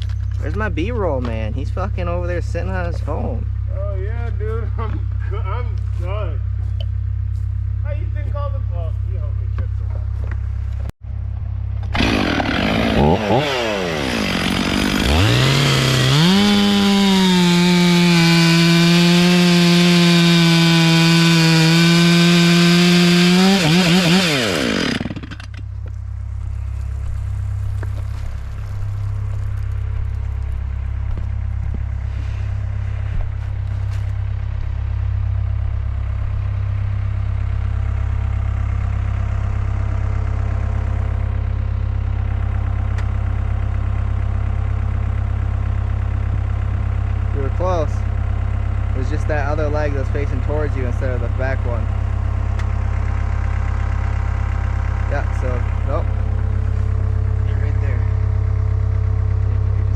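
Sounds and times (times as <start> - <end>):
chainsaw engine revving and idling: 11.8 - 25.6, 36.2 - 59.9.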